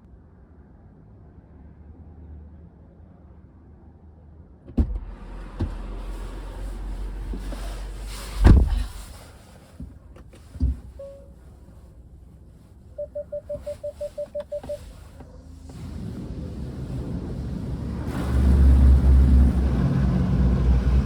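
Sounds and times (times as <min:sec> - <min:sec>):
electronic beeps: 0:13.0 - 0:14.9.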